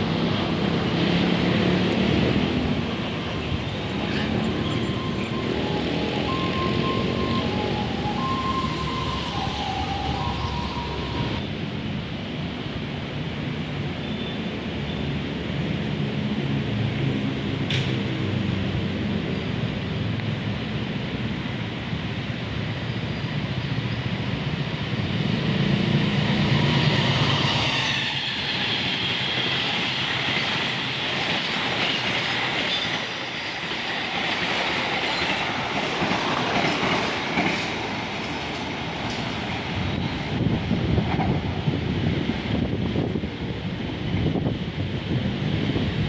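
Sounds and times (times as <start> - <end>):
train passing on rails: 0.0 - 46.0
wheels clicking over rail joints: 30.3 - 39.6.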